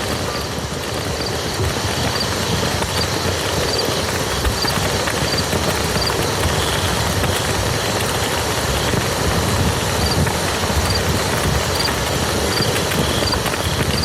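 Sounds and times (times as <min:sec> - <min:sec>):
rain on a muddy field: 0:00.0 - 0:14.0.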